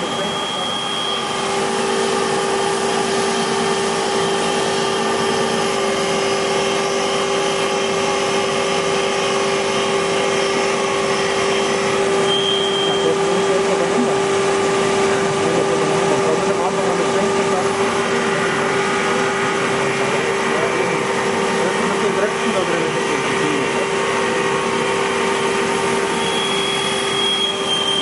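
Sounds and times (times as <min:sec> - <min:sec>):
short high whine: 0:00.0 - 0:06.2, 0:10.4 - 0:13.8, 0:23.4 - 0:28.0
rushing machining noise: 0:00.0 - 0:28.0
wood lathe motor hum: 0:00.0 - 0:28.0.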